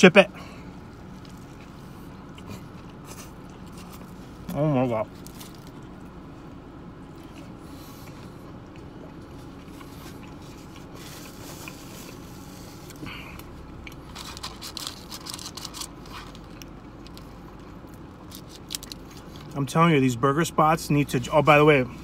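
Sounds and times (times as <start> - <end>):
steady low hum: 0.0 - 22.0
person chewing food: 0.8 - 4.5, 5.2 - 19.6.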